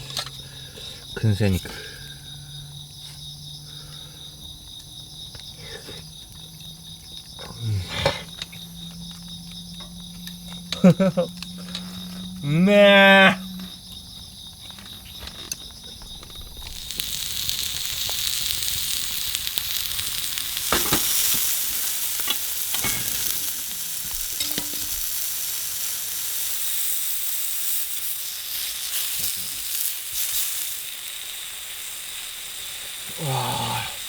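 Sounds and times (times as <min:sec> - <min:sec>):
meat sizzling on a hot pan: 0:16.0 - 0:34.0.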